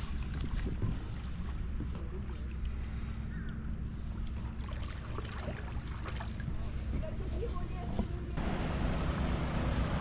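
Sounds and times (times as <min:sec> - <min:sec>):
wind rumble on microphone: 0:00.0 - 0:02.6
light water splashing: 0:00.0 - 0:08.2.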